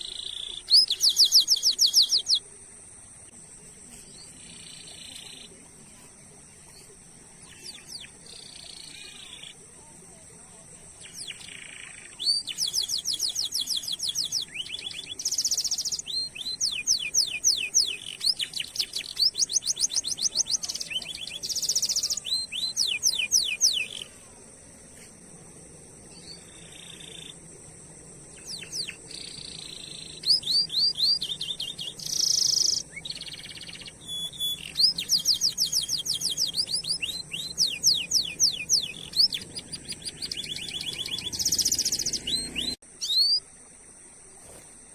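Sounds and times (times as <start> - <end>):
canary singing trills: 0.0 - 2.4, 6.7 - 9.6, 10.9 - 24.1, 26.1 - 27.4, 28.3 - 43.4.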